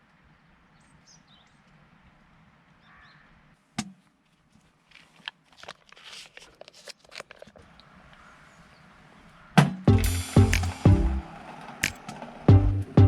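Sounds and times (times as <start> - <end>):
small clicks and rustles: 4.2 - 8.2
sharp knock: 9.6 - 11.1.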